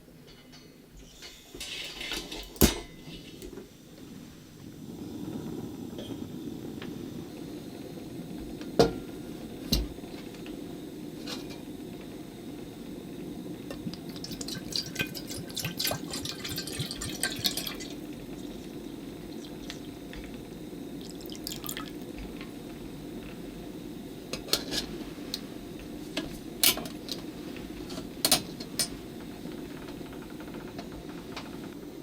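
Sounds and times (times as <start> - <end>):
liquid sloshing: 14.1 - 18.7.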